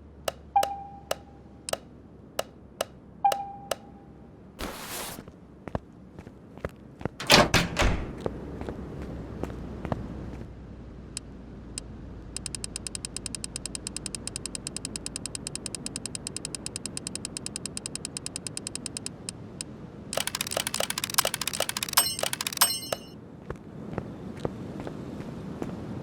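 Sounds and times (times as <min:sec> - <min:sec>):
rapid mechanical clicking: 0:12.3 - 0:19.4, 0:20.2 - 0:23.1.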